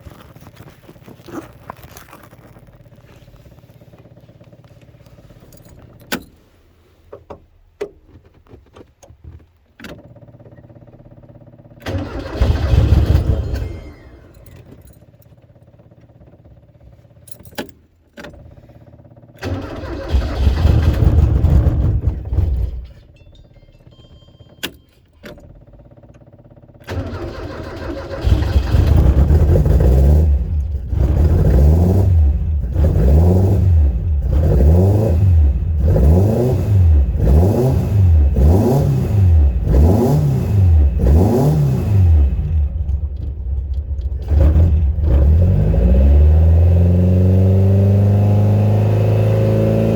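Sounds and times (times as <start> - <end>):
car engine starting and revving: 9.3 - 17.1, 18.3 - 23.1, 25.3 - 49.9.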